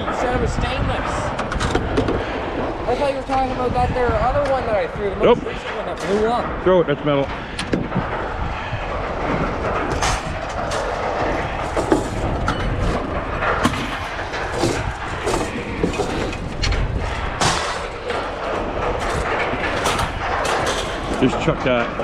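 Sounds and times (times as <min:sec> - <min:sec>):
low rumble: 0:00.0 - 0:22.0
scrap metal clanging onto a pile: 0:09.1 - 0:22.0.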